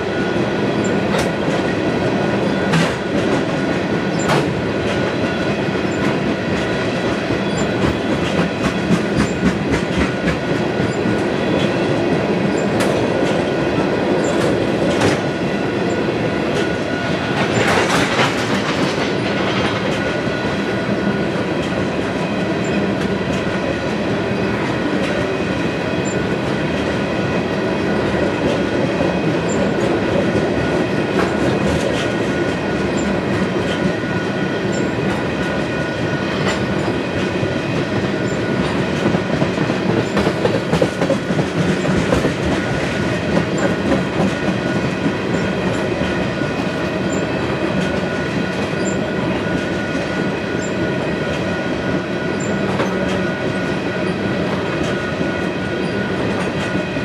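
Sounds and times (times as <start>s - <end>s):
train wheels rumbling on rails: 0.0s - 57.0s
clacks and knocks: 17.4s - 20.1s, 38.6s - 45.0s.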